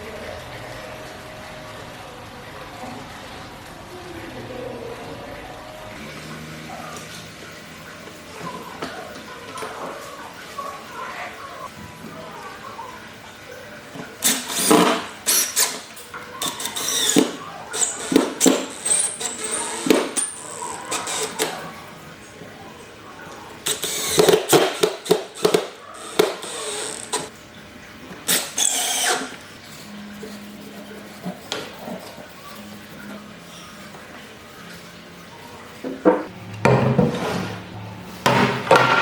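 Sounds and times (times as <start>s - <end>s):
power tool running: 16.4s - 21.6s, 23.6s - 27.3s, 28.2s - 29.4s
knocks and handling of wood: 38.2s - 39.0s.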